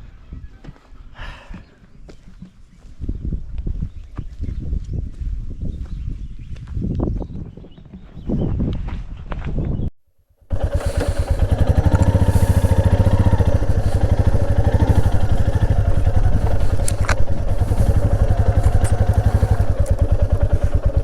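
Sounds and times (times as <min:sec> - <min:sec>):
motorcycle engine running: 0:10.5 - 0:21.0.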